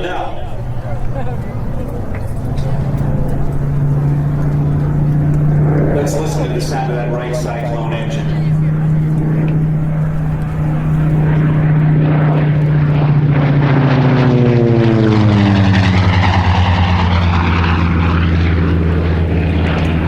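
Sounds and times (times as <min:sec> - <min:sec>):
propeller plane droning past: 0:00.0 - 0:20.0.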